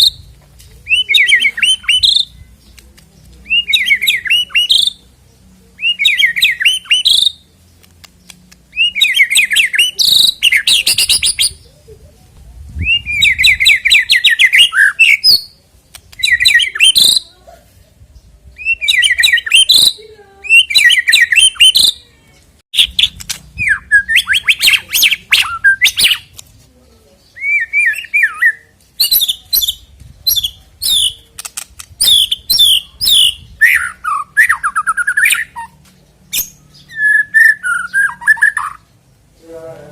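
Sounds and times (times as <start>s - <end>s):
bird singing whistles and trills: 0.9s - 2.5s, 3.4s - 5.0s, 5.8s - 7.4s, 8.7s - 11.7s, 12.7s - 15.6s, 16.2s - 17.2s, 18.5s - 22.0s, 22.8s - 26.3s, 27.3s - 31.2s, 32.0s - 38.9s.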